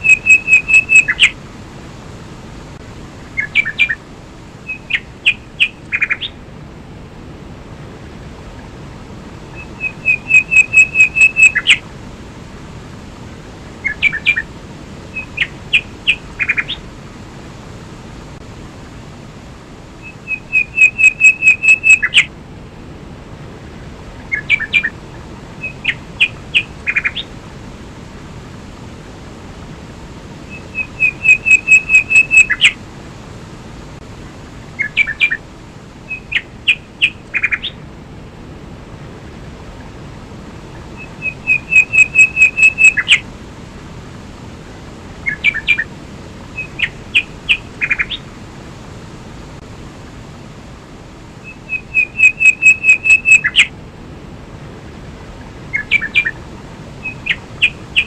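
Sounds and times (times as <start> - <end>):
songbird trilling: 0.0 - 1.4, 3.3 - 4.0, 4.6 - 6.4, 9.5 - 11.8, 13.8 - 14.5, 15.1 - 16.8, 20.0 - 22.3, 24.2 - 25.0, 25.6 - 27.3, 30.5 - 32.8, 34.8 - 35.4, 36.1 - 37.8, 41.0 - 43.2, 45.2 - 45.9, 46.6 - 48.3, 51.4 - 53.7, 55.7 - 56.4, 57.0 - 58.0
waterfall and stream rushing: 0.0 - 58.0.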